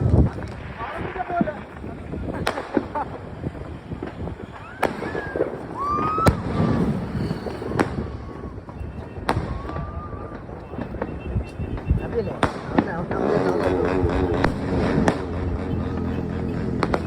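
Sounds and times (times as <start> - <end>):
fireworks bangs: 0.0 - 17.0
steady rumble: 12.8 - 17.0.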